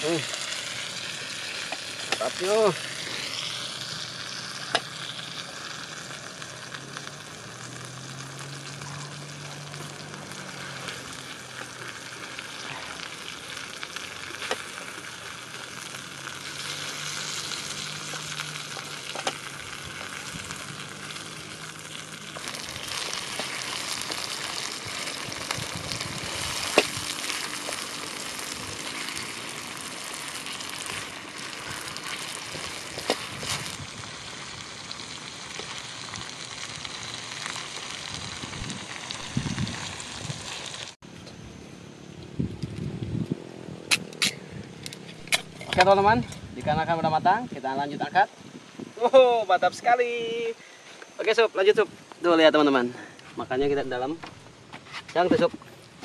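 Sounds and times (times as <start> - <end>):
food sizzling in oil: 0.0 - 41.0.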